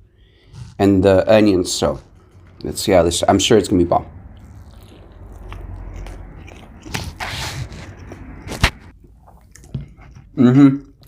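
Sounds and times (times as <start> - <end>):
person chewing food: 4.1 - 11.0.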